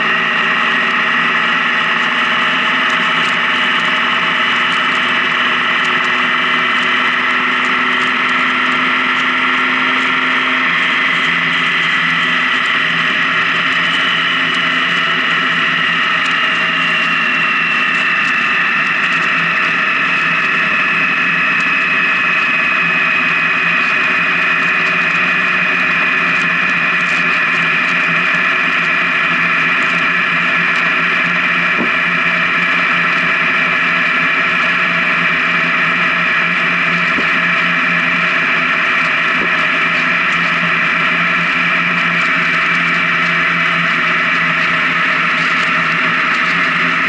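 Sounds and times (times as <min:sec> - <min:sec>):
motorcycle engine cruising: 0:00.0 - 0:47.0
whining tone: 0:00.0 - 0:47.0.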